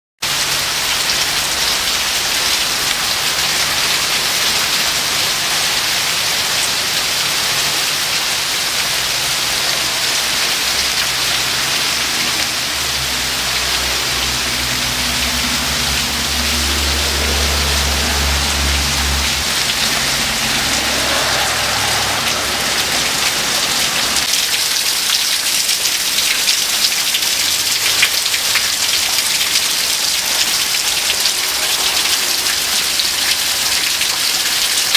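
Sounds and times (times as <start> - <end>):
heavy rain hissing: 0.2 - 34.9
low rumble: 13.0 - 24.3.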